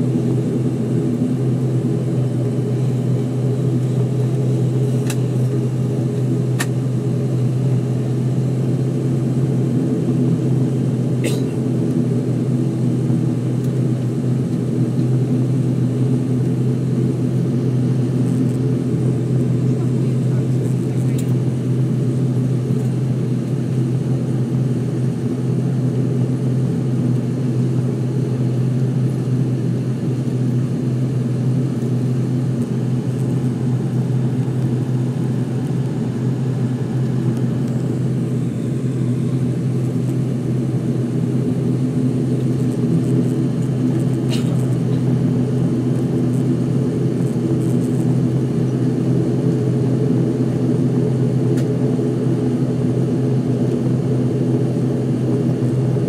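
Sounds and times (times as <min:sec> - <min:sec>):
turboprop engines droning: 0:00.0 - 0:56.0.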